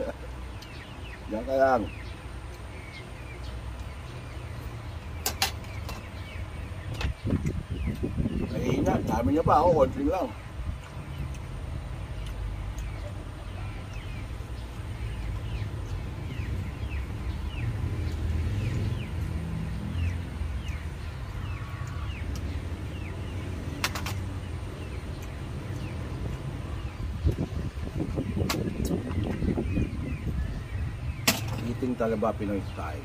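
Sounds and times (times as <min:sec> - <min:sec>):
bird chirping: 0:00.0 - 0:33.0.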